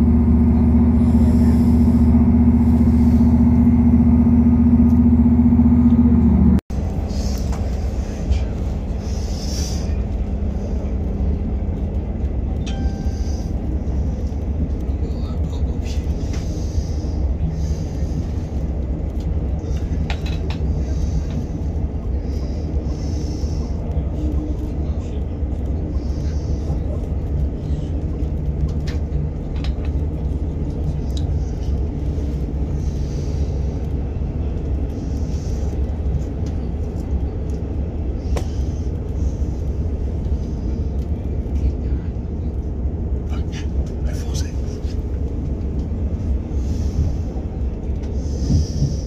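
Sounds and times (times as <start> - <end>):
train wheels rumbling on track: 0.0 - 49.0.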